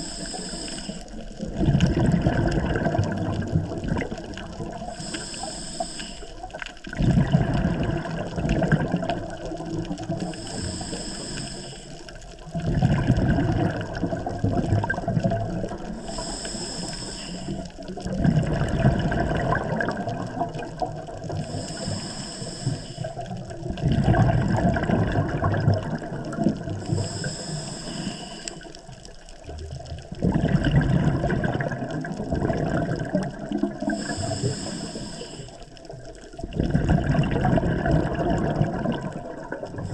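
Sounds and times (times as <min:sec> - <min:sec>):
regulator inhale hiss: 0:00.0 - 0:01.4, 0:04.8 - 0:06.6, 0:10.2 - 0:12.3, 0:15.9 - 0:17.9, 0:21.3 - 0:23.4, 0:26.7 - 0:29.2, 0:33.8 - 0:36.0
exhaled bubbles rushing: 0:01.1 - 0:05.0, 0:06.4 - 0:10.6, 0:12.1 - 0:16.3, 0:17.5 - 0:22.0, 0:23.0 - 0:27.6, 0:28.4 - 0:39.9.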